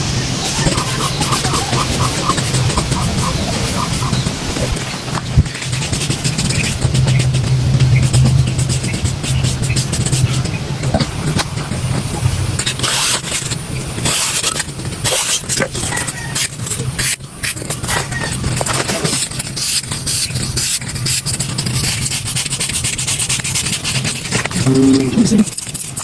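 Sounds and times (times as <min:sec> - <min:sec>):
low hum: 0:24.5 - 0:25.5.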